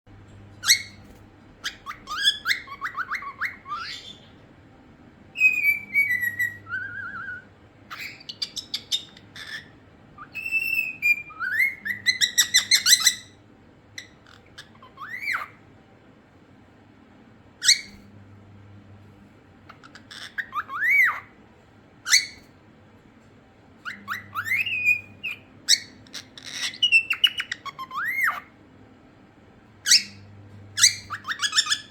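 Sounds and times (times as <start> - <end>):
cockatiel whistling and chirping: 0.6 - 4.3, 5.4 - 13.4, 14.0 - 15.6, 17.6 - 18.1, 19.7 - 21.4, 22.0 - 22.5, 23.8 - 28.5, 29.8 - 31.9.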